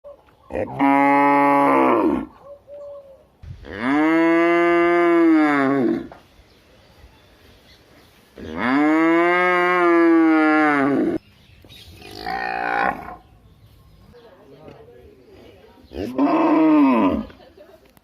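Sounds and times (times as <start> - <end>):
cow mooing: 3.7 - 6.1, 8.4 - 11.2, 12.0 - 13.2.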